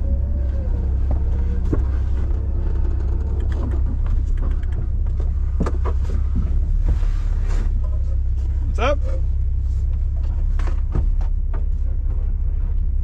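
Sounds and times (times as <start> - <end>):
vehicle engine rumbling: 0.0 - 13.0
knocks and rattles: 0.9 - 8.2.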